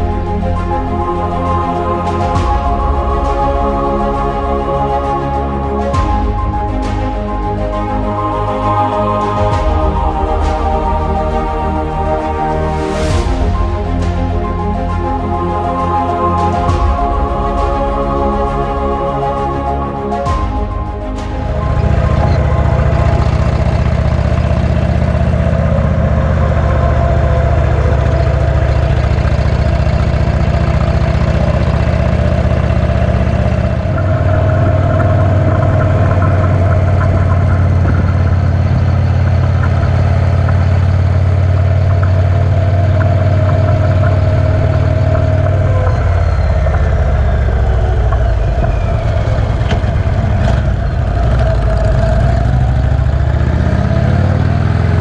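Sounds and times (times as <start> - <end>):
motorcycle engine running: 21.2 - 55.0.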